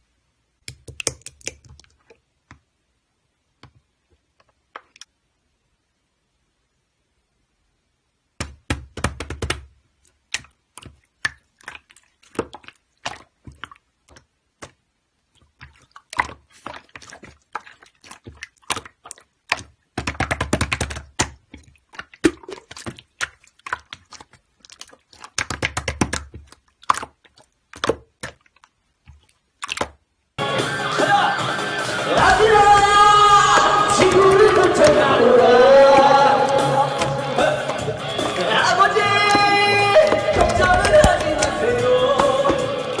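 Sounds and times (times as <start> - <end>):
slime squishing: 0.6 - 2.7, 8.4 - 30.3, 32.2 - 43.0.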